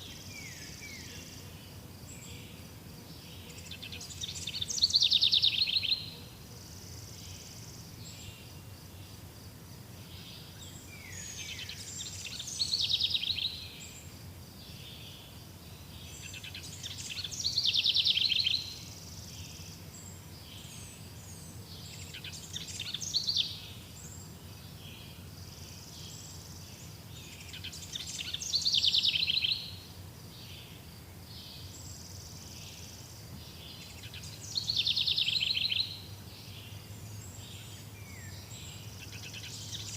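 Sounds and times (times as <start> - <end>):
songbird trilling: 3.7 - 6.1, 16.2 - 18.8, 27.5 - 29.8, 33.8 - 36.1.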